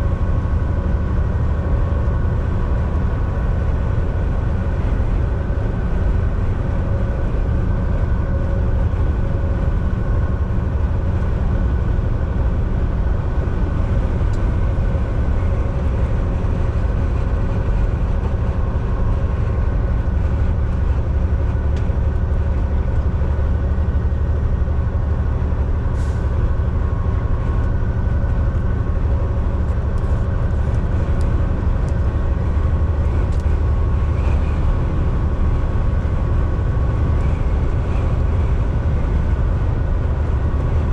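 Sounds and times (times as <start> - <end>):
diesel truck engine drone: 0.0 - 40.9
road and tyre rumble: 0.0 - 40.9.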